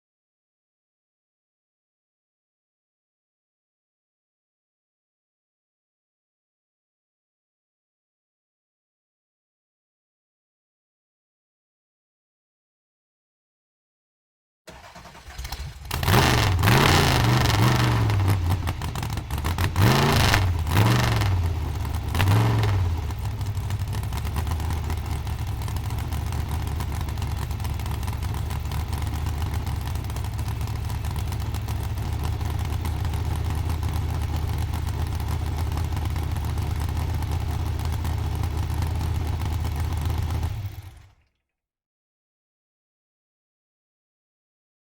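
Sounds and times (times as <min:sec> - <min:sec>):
truck engine revving and idling: 0:14.8 - 0:41.2.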